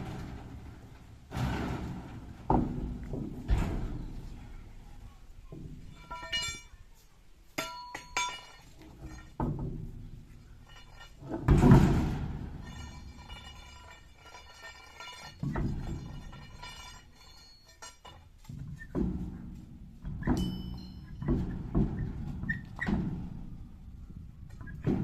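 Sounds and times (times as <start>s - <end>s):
heavy thuds: 0.0s - 6.7s, 9.4s - 17.4s, 18.5s - 25.0s
metal clinks and clanks: 5.9s - 6.9s, 7.6s - 9.6s, 10.6s - 18.6s, 20.3s - 22.2s.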